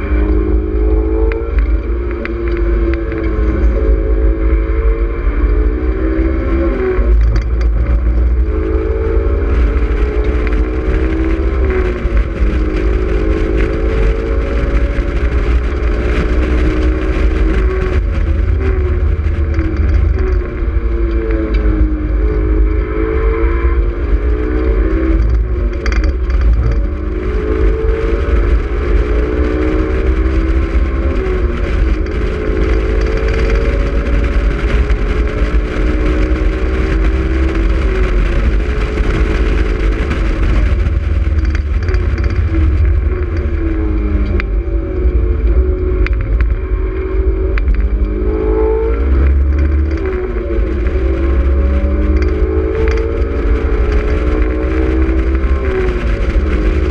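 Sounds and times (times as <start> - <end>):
car engine revving: 0.0 - 56.9
wind and road noise: 0.0 - 56.9.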